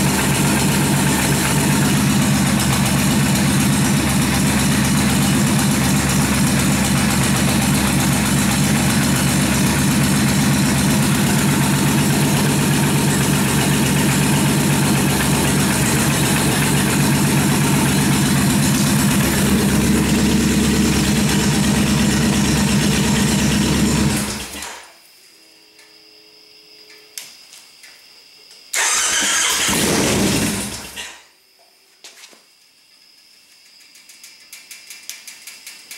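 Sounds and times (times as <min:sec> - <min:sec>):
motorcycle engine idling: 0:00.0 - 0:24.5.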